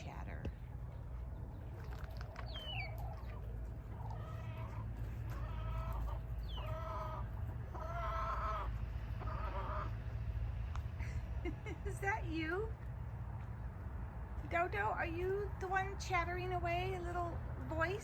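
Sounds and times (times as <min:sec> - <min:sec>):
steady low rumble: 0:00.0 - 0:18.0
hens clucking: 0:00.8 - 0:10.1.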